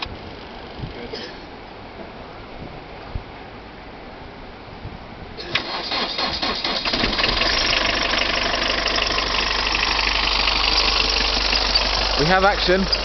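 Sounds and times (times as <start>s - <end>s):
car engine cranking and idling: 5.4s - 13.0s.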